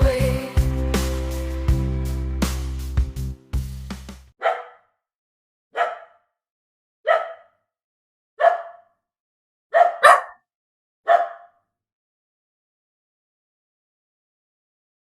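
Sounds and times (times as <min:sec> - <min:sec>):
dog barking: 0:04.4 - 0:05.0, 0:05.7 - 0:06.4, 0:07.0 - 0:07.7, 0:08.4 - 0:09.0, 0:09.7 - 0:10.5, 0:11.1 - 0:11.7.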